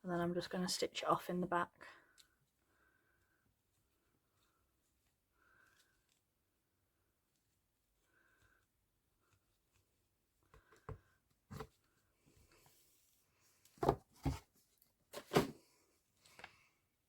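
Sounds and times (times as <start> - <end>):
objects knocking on work table: 13.8 - 14.4.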